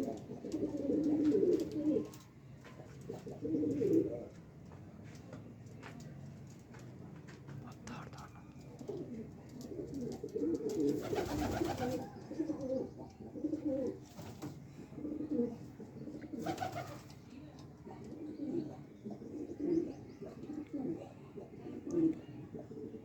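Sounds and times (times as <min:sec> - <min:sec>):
pigeons cooing: 0:00.0 - 0:02.2, 0:02.8 - 0:04.4, 0:08.6 - 0:17.1, 0:17.9 - 0:23.0.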